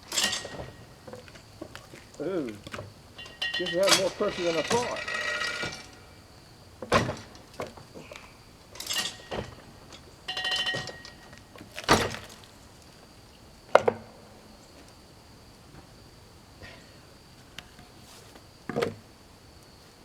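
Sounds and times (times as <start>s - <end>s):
wooden thunks: 0.0s - 6.1s, 6.8s - 12.6s, 13.7s - 14.2s, 18.7s - 19.1s
metal clanks: 0.0s - 12.6s.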